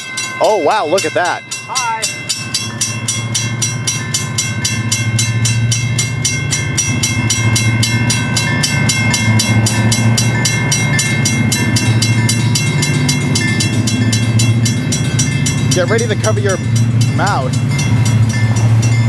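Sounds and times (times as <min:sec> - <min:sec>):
bell ringing fast: 0:00.0 - 0:19.0
diesel locomotive engine rumble: 0:00.0 - 0:19.0.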